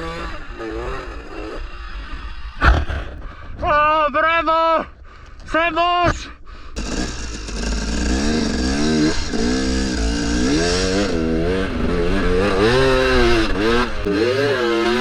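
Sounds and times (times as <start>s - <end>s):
dirt bike engine revving: 0.0s - 3.2s, 6.8s - 15.0s.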